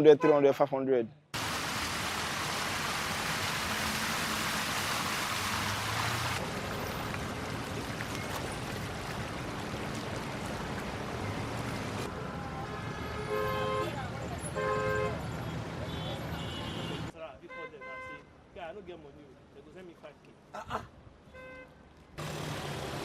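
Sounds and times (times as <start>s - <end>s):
floodwater rushing: 1.4s - 12.1s
traffic: 1.4s - 23.0s
car horn honking: 12.7s - 18.3s.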